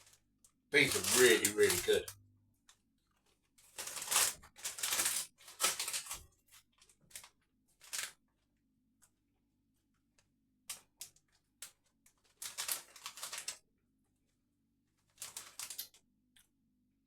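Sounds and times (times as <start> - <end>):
crisps crunching while chewing: 0.8 - 2.1, 12.3 - 13.6, 15.2 - 16.0.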